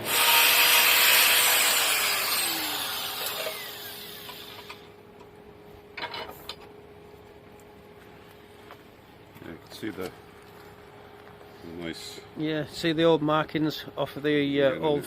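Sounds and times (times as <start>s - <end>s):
bench grinder whining: 0.0s - 4.9s.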